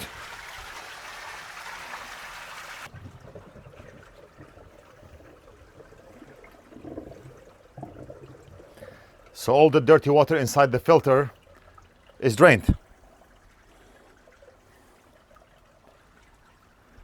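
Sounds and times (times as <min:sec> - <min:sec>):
splashing hiss: 0:00.0 - 0:02.9
water draining from pool filter: 0:00.0 - 0:17.0.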